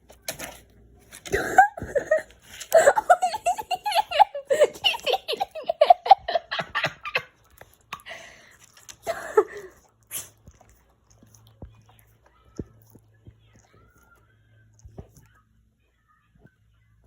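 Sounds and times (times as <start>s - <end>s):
hearty laughter: 1.6s - 7.4s.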